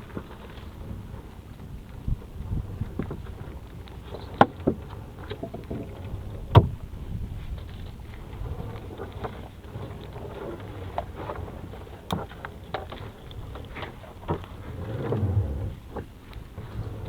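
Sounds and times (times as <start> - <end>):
sea water sloshing around boat: 0.0 - 17.0
wind buffeting microphone: 0.0 - 17.0
knocks and splashes: 4.1 - 6.8.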